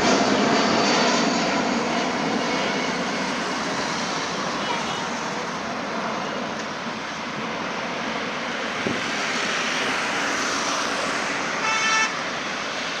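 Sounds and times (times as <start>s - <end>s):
jet engines roaring: 0.0s - 13.0s
short horn: 11.6s - 12.2s.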